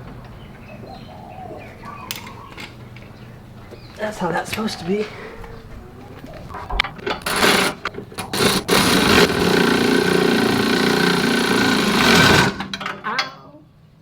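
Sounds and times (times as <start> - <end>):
power tool motor running: 7.2 - 12.8.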